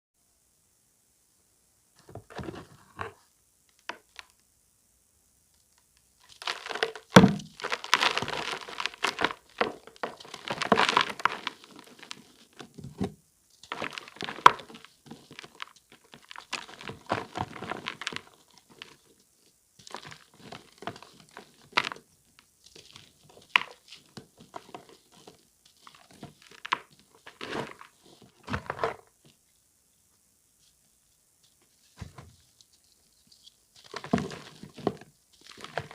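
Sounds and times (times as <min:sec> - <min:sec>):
charcoal block crunching and crackling: 0:06.2 - 0:13.0, 0:13.6 - 0:29.1, 0:33.8 - 0:35.9.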